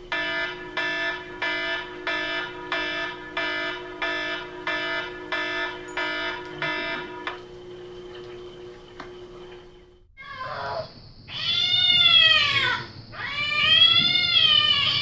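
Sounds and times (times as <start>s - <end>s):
electronic alarm beeping: 0.0s - 7.4s.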